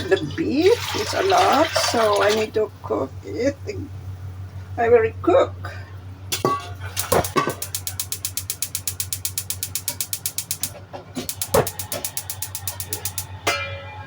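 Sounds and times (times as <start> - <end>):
steady low hum: 0.0 - 14.0
gas stove igniter clicking: 6.3 - 13.4.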